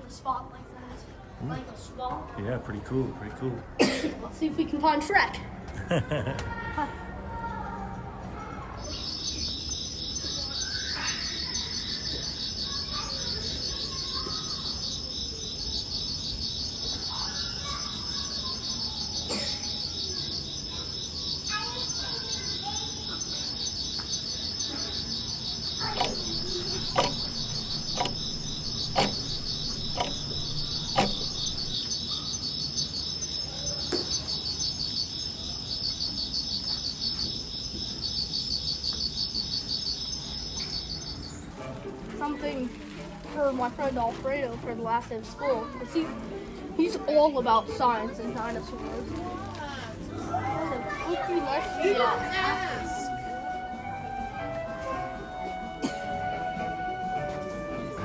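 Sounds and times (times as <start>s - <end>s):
crickets chirring: 8.9s - 41.6s
sharp clicks: 25.8s - 31.8s.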